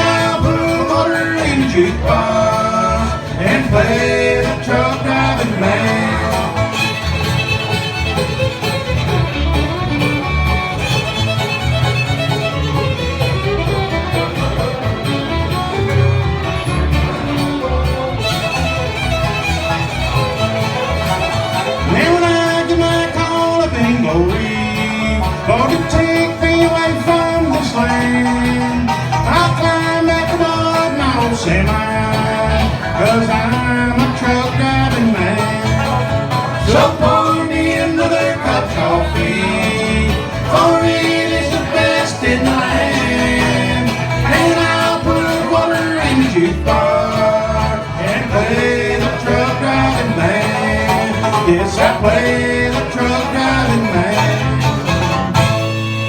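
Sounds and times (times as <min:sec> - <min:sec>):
banjo picking: 0:00.0 - 0:56.0
bass line: 0:00.0 - 0:56.0
bluegrass band playing: 0:00.0 - 0:56.0
guitar picking: 0:00.0 - 0:56.0.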